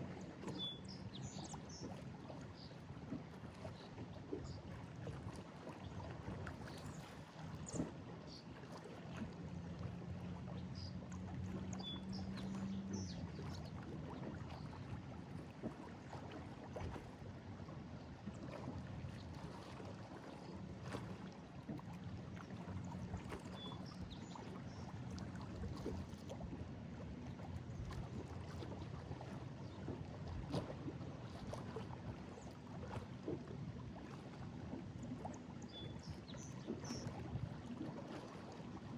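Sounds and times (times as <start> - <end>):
waves lapping against a wall: 1.4 - 38.9.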